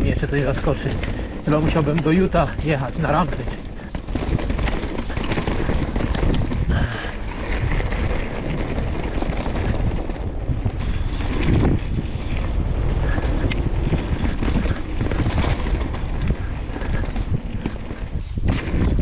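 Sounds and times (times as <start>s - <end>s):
bike rattling clicks and knocks: 0.0s - 19.0s
wind rushing over microphone: 0.0s - 19.0s.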